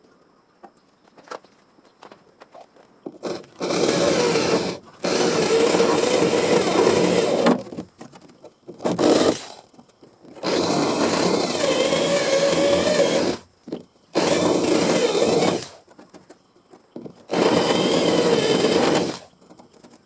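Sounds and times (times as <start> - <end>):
angle grinder on sheet steel: 3.2 - 7.7, 8.8 - 9.5, 10.4 - 13.4, 14.2 - 15.8, 17.3 - 19.3.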